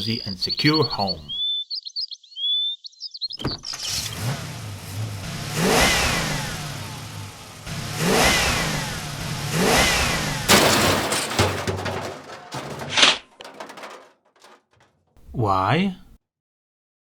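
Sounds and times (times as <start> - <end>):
car engine revving: 3.8 - 12.7.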